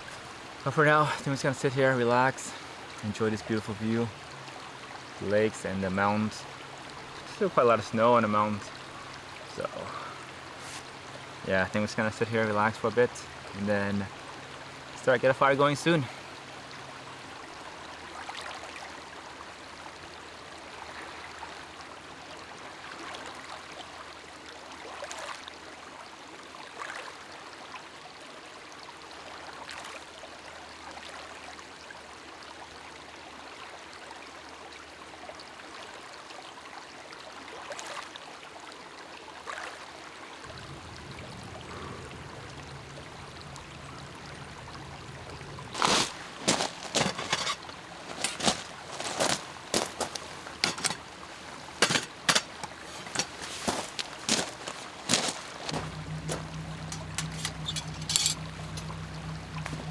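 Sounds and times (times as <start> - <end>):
running water rushing: 0.0 - 22.1, 40.4 - 59.9.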